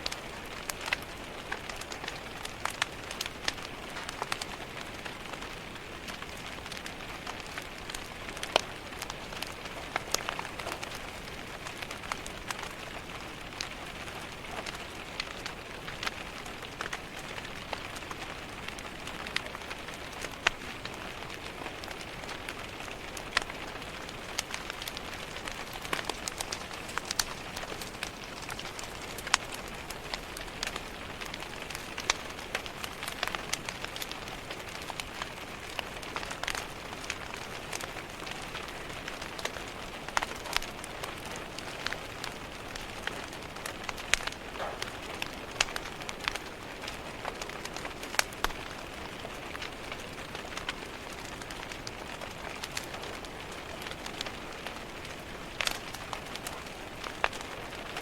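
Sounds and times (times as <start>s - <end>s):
rain pattering on window: 0.0s - 58.0s
wood fire crackling: 0.0s - 58.0s.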